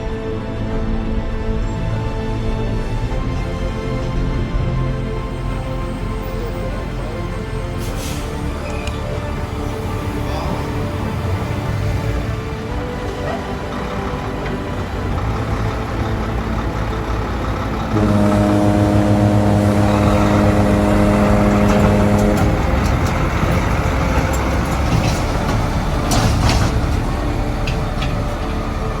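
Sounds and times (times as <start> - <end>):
road traffic with trucks: 0.0 - 29.0
vehicle horn: 17.4 - 29.0.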